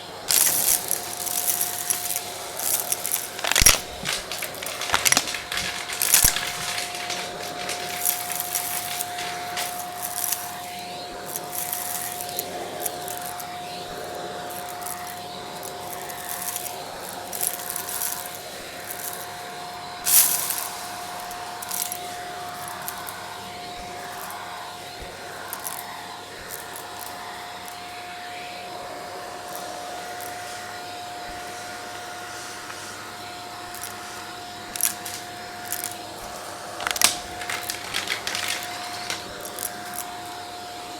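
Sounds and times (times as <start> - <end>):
vacuum cleaner running: 0.0 - 40.9
debris crackling in vacuum: 0.3 - 19.5, 33.6 - 40.4.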